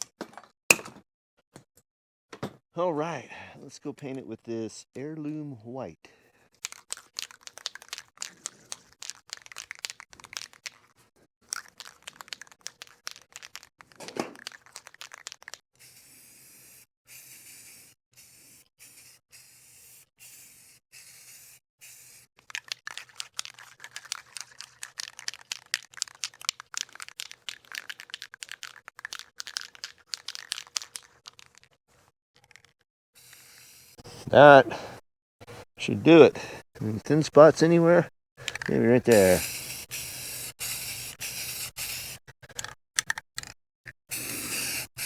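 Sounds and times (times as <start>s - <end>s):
scratchy crackling of painting: 17.4s - 32.8s.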